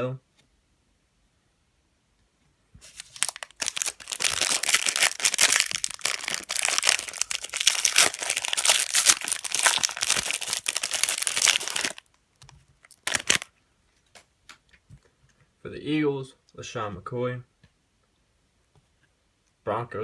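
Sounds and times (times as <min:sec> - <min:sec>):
foil wrapper crackling: 0:02.8 - 0:12.1, 0:12.8 - 0:13.5.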